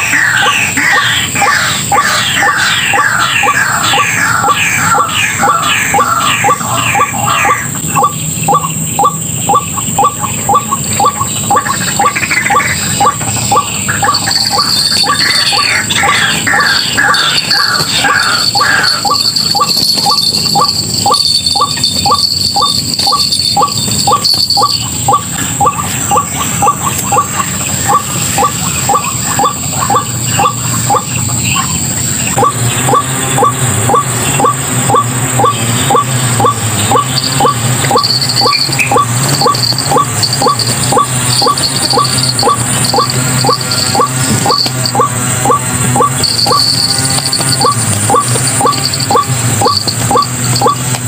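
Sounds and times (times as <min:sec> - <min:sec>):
bird calling harsh notes: 0:00.0 - 0:51.0
steady high-pitched whine: 0:00.0 - 0:51.0.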